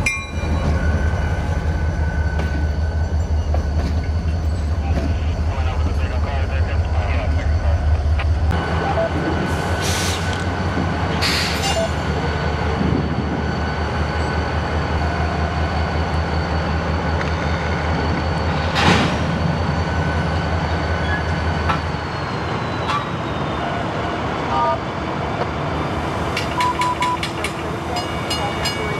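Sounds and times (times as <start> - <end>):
locomotive low rumble: 0.0 - 13.6.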